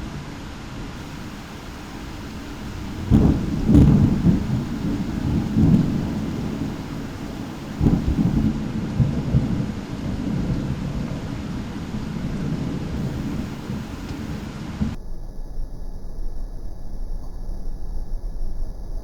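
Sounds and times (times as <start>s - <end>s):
steady rain: 0.0s - 15.0s
thunder clap and rumble: 1.0s - 17.6s.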